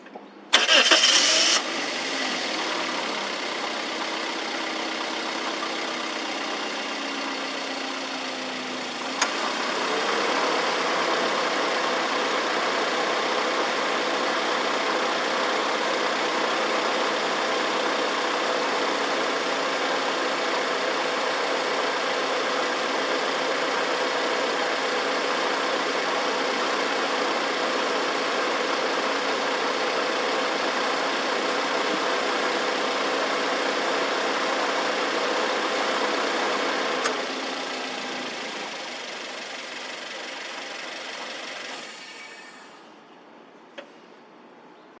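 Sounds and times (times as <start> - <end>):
car engine cranking: 0.5 - 6.7, 8.8 - 10.8
car engine idling: 0.5 - 41.7.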